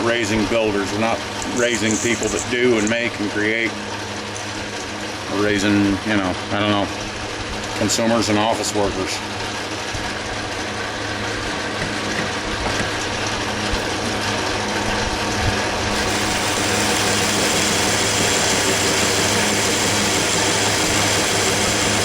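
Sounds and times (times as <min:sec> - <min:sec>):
lathe cutting hiss: 0:01.7 - 0:02.9, 0:16.0 - 0:22.0
lathe motor hum: 0:15.9 - 0:22.0.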